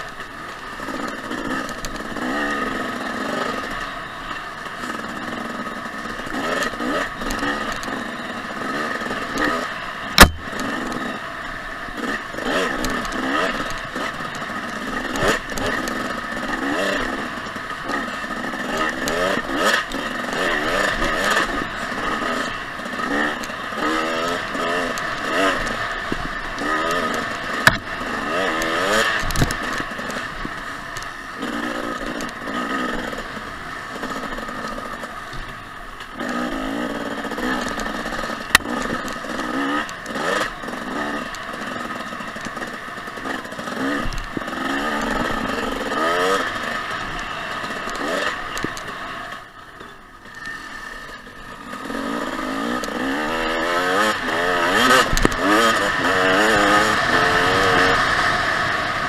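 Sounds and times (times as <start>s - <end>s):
dirt bike engine revving: 0.0s - 59.0s
sharp knocks: 10.2s - 10.5s.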